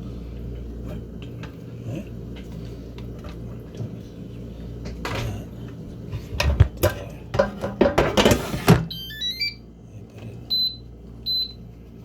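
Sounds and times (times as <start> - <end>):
steady low hum: 0.0 - 12.0
dishes clinking: 6.4 - 8.8.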